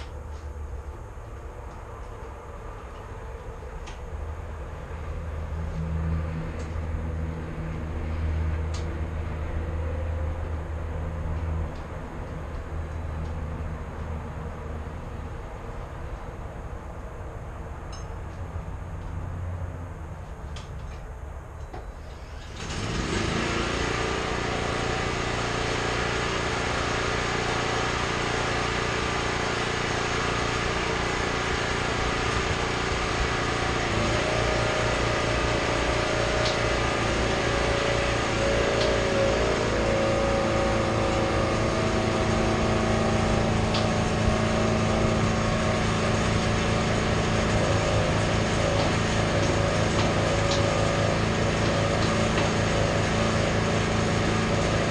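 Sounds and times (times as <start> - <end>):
small engine running: 22.3 - 54.9.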